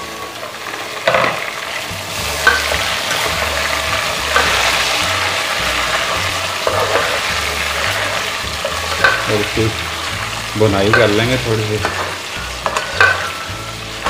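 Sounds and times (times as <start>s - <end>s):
chicken sizzling in hot oil: 0.0s - 14.0s
metal spatula scraping pot: 2.0s - 10.1s, 10.8s - 14.0s.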